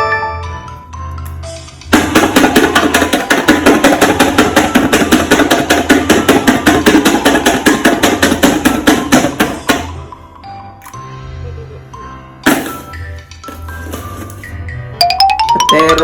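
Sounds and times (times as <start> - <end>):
rapid mechanical hammering: 1.9 - 10.0.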